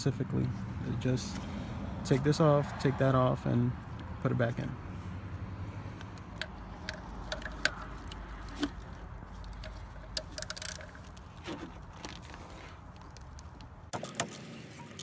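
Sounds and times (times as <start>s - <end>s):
hand tools clicking and tapping: 5.9s - 12.2s.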